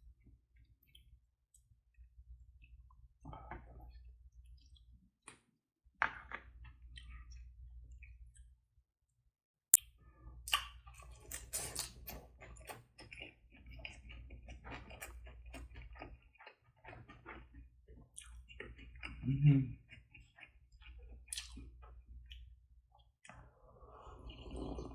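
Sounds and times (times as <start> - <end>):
chewing with wet clicks: 0.6 - 5.4, 6.6 - 8.6, 10.5 - 23.4.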